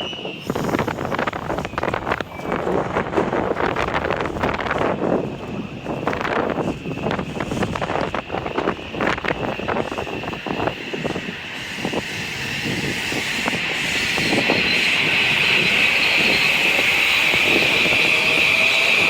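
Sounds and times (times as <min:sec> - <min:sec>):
train squealing into station: 0:00.0 - 0:03.4, 0:04.9 - 0:19.0
wind buffeting microphone: 0:00.0 - 0:19.0.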